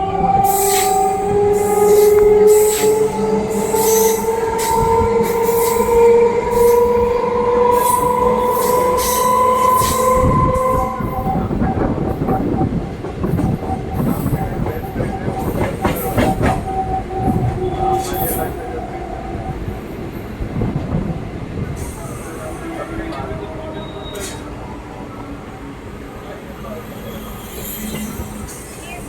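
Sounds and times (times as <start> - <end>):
electric train whine: 0.0 - 29.0
wheels rumbling and clicking on track: 0.0 - 29.0.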